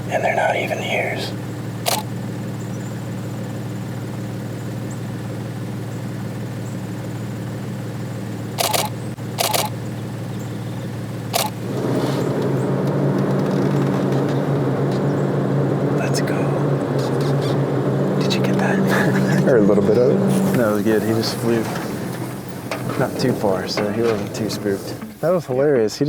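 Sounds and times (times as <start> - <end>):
vehicle engine idling: 0.0 - 26.0
camera shutter clicks: 1.9 - 2.1, 8.6 - 9.8, 11.4 - 11.6.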